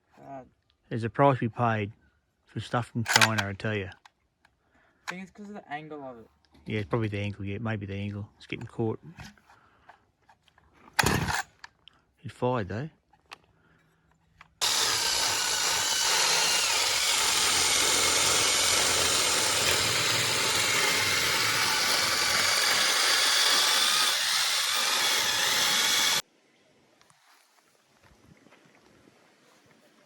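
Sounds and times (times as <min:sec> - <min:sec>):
chainsaw running: 0:11.0 - 0:11.5, 0:14.6 - 0:26.2.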